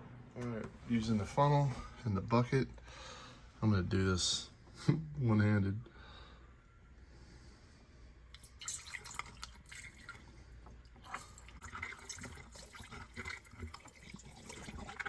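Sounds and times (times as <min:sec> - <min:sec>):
liquid pouring through a funnel: 0:08.3 - 0:15.0
water splashing and trickling: 0:08.4 - 0:10.3, 0:11.0 - 0:15.0.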